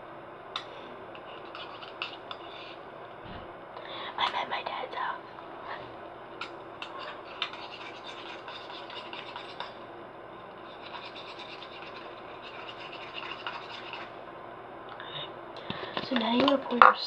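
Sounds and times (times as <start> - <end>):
utensil scraping a bowl: 0.6 - 2.8, 6.4 - 9.8, 10.6 - 14.2.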